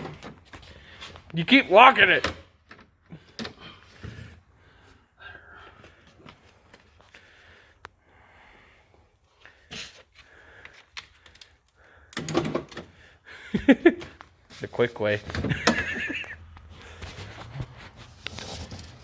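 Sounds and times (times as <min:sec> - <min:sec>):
parts clattering: 0:10.0 - 0:19.0
tools clicking on car door parts: 0:12.1 - 0:13.0, 0:15.3 - 0:16.0.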